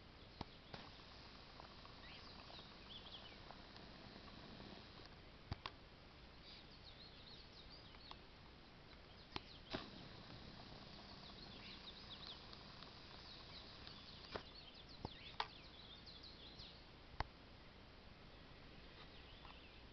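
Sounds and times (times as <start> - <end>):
small birds chirping: 0.0 - 16.9, 17.6 - 19.9
sharp clicks: 0.4 - 5.8, 8.9 - 15.7.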